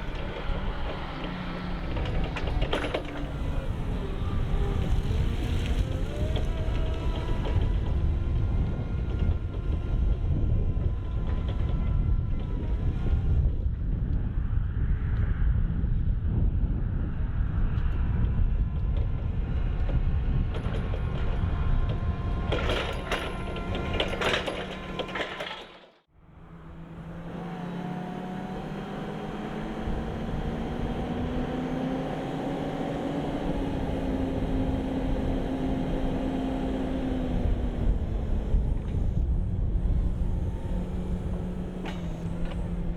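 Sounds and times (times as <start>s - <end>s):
forklift engine running: 0.0s - 13.6s, 19.2s - 42.9s
mechanism clattering and rattling: 22.5s - 25.9s
rising whine: 26.2s - 42.9s.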